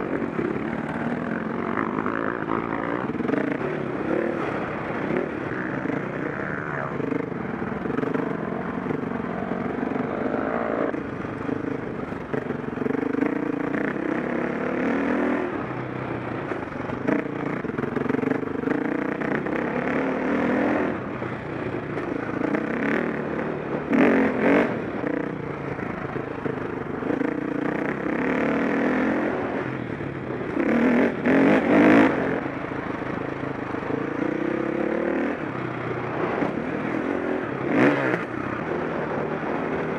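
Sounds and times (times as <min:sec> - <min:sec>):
dirt bike engine revving: 0:00.0 - 0:15.7, 0:22.0 - 0:26.1, 0:30.4 - 0:33.2, 0:33.8 - 0:39.9.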